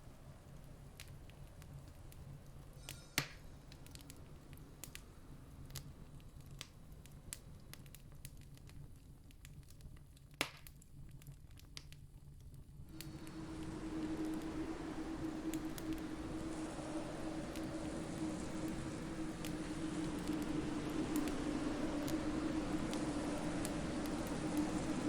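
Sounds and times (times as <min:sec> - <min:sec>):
campfire crackling: 0:00.0 - 0:25.0
low rumble: 0:12.9 - 0:25.0
steady low hum: 0:12.9 - 0:25.0.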